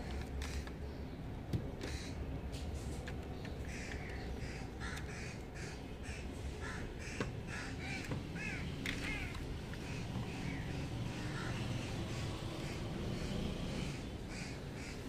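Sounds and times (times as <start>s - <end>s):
bird calling: 3.4s - 15.0s.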